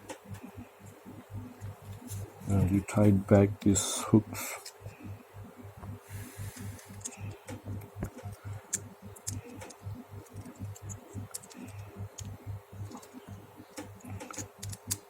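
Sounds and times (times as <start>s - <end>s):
low pulsing hum: 0.0s - 15.0s
small metal clicks and taps: 6.6s - 15.0s.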